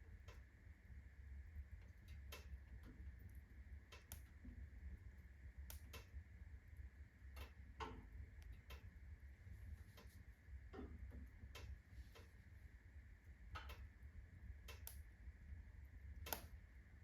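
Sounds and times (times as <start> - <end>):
fire crackling and popping: 1.8 - 6.2.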